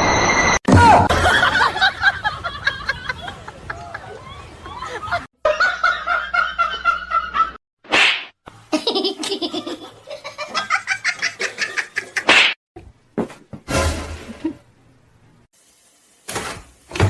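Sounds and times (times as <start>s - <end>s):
human laughter: 1.1s - 7.6s, 8.7s - 12.3s.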